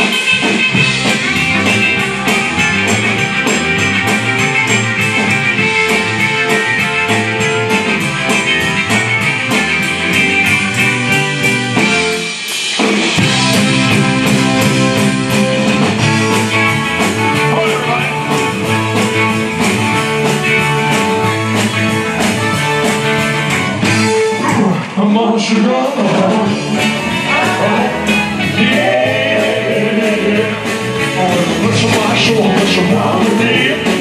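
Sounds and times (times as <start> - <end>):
drum kit beat: 0.0 - 25.1, 25.8 - 34.0
electric guitar: 0.0 - 34.0
rock band playing: 0.0 - 34.0.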